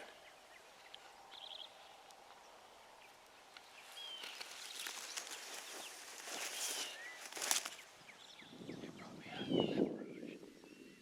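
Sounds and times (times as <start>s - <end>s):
songbird chirps: 0.0s - 11.0s
wings beating in dry leaves: 3.2s - 8.0s.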